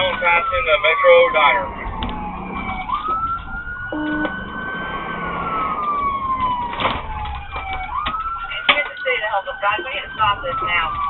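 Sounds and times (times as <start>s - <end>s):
police siren wailing: 0.0s - 11.0s
low engine rumble: 0.2s - 8.5s.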